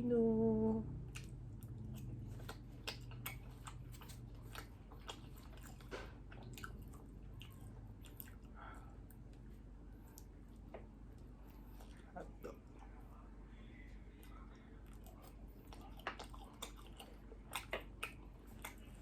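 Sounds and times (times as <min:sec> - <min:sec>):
close-miked chewing: 0:01.0 - 0:19.0
wet mouth clicks and smacks: 0:01.1 - 0:08.5, 0:15.7 - 0:19.0.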